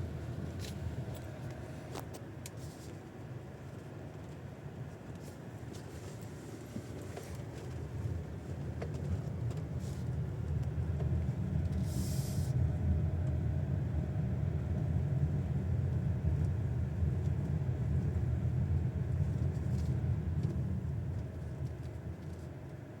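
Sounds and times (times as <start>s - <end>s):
road rumble inside car: 0.0s - 23.0s
brief hiss: 11.8s - 12.5s.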